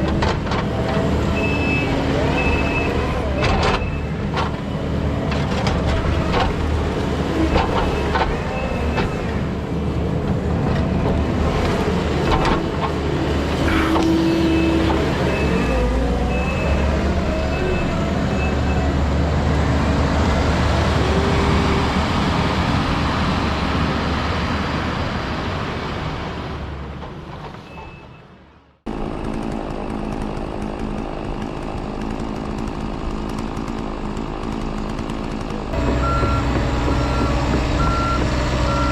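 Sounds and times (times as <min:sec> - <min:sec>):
diesel heavy equipment running: 0:00.0 - 0:38.9.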